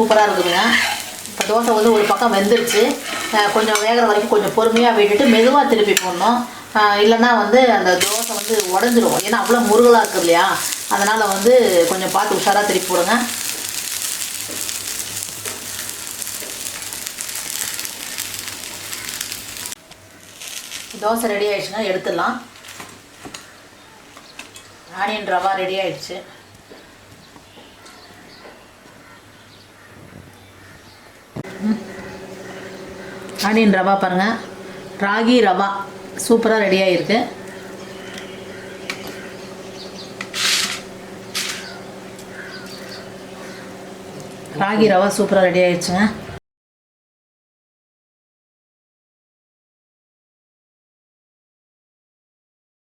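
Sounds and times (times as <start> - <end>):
dosa sizzling in oil: 0.0 - 21.7, 31.4 - 45.4
low electrical hum: 0.0 - 24.0, 31.4 - 46.4.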